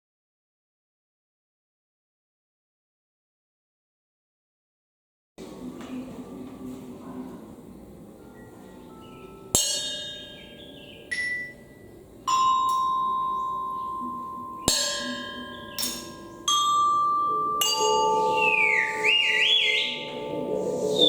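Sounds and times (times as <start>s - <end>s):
ringing metal percussion strikes: 8.2s - 21.0s
wavering sliding whistle tone: 17.6s - 21.0s.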